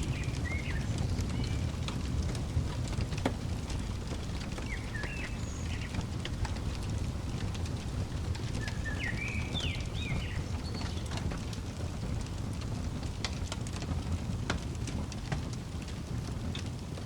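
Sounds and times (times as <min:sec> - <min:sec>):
bird chirping: 0:00.0 - 0:01.7, 0:03.7 - 0:11.5
wood fire crackling: 0:00.0 - 0:17.0.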